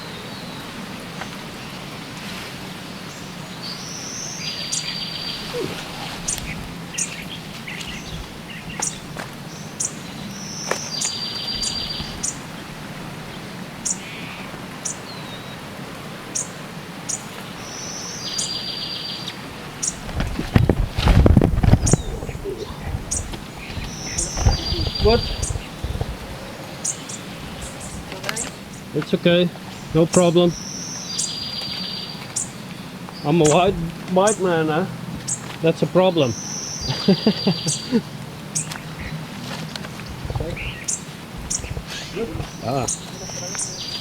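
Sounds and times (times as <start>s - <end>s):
birds calling: 0.0s - 44.0s
steady background hiss: 0.0s - 44.0s
rustling and knocking near microphone: 19.9s - 26.6s, 38.7s - 43.6s.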